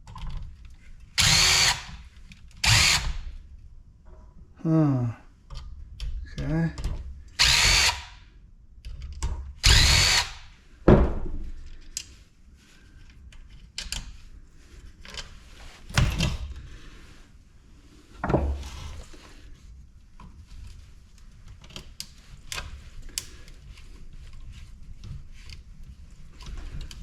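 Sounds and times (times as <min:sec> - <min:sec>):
cordless drill spinning: 0:01.2 - 0:03.3, 0:07.4 - 0:08.2, 0:09.6 - 0:10.5.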